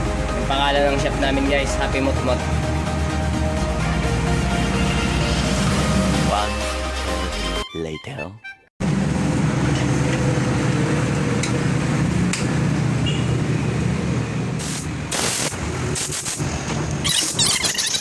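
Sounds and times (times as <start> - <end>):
air compressor running: 8.8 - 18.0
spray gun hissing bursts: 14.6 - 16.4.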